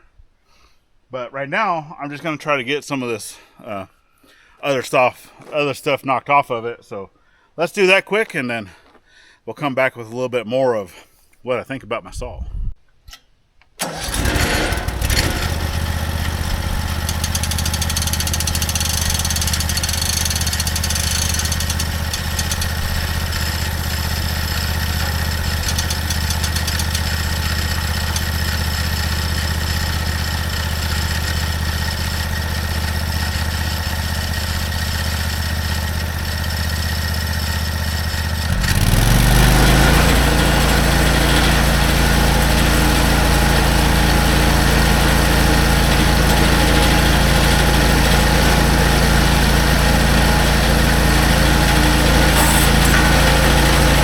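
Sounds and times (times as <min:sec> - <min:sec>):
small gasoline engine running: 0:13.8 - 0:54.0.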